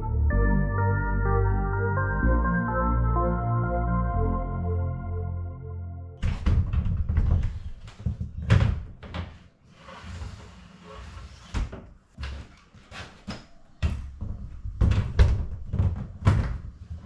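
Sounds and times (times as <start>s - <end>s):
demolition knocks and thuds: 6.2s - 9.3s, 13.8s - 17.0s.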